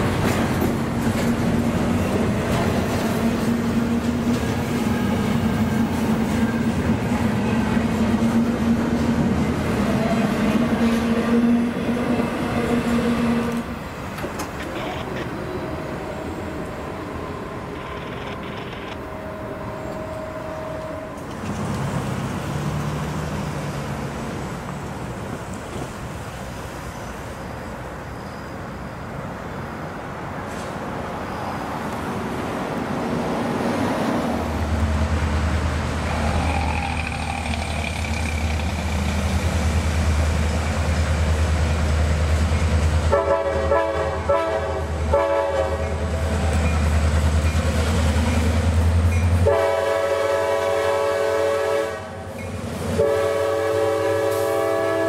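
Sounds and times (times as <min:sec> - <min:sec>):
diesel locomotive engine rumble: 0:00.0 - 0:55.0
freight train rolling past: 0:00.0 - 0:55.0.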